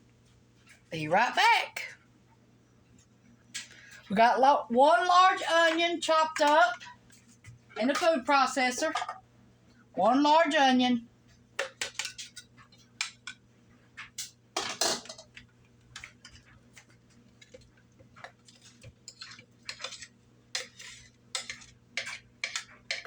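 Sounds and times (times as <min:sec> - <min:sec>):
utensils and dishes clinking: 0:14.2 - 0:15.4
dish scraping clatter: 0:14.6 - 0:15.3.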